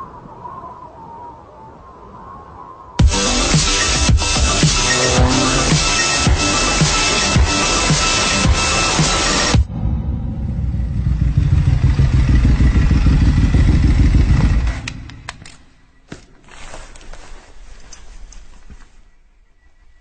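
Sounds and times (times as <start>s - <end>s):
motorcycle engine running loud: 4.4s - 8.3s, 10.6s - 15.2s
sharp clicks: 14.8s - 15.7s.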